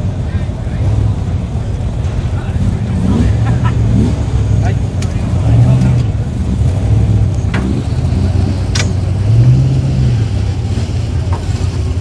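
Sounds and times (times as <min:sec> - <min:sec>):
racing engines droning: 0:00.0 - 0:12.0
engine revving: 0:02.5 - 0:12.0.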